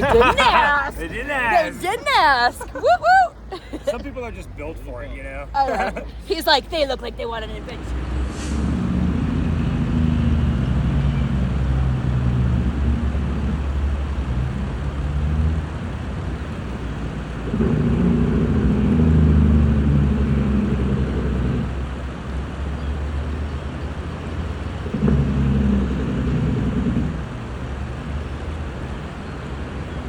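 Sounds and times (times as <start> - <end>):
engine humming: 0.0 - 30.0.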